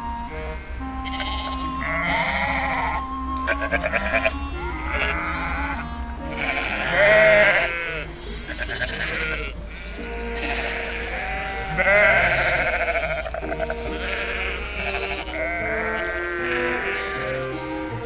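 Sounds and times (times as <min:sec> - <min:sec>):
background music of held notes: 0:00.0 - 0:18.0
sheep bleating: 0:00.3 - 0:18.0.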